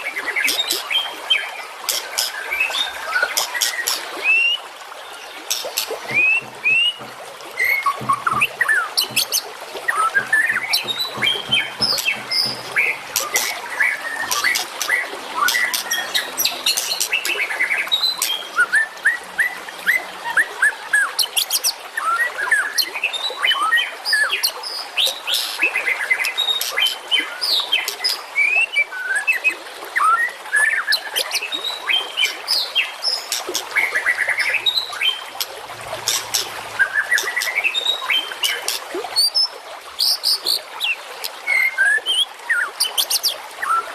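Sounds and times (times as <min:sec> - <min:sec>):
songbirds chirping and singing: 0:05.3 - 0:21.5
sharp bird clicking notes: 0:05.5 - 0:17.4, 0:35.4 - 0:37.6.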